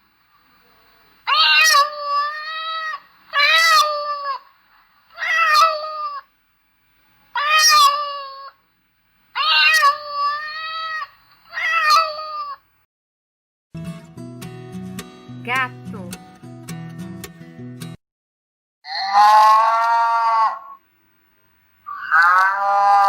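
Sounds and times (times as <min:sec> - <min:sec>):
cat meowing: 0:01.3 - 0:04.4, 0:05.2 - 0:06.2, 0:07.4 - 0:08.5, 0:09.4 - 0:12.6, 0:21.9 - 0:23.0.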